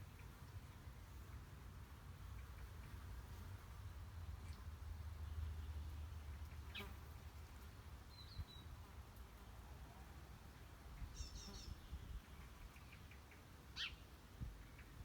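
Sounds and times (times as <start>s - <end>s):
small birds chirping: 10.9s - 15.0s.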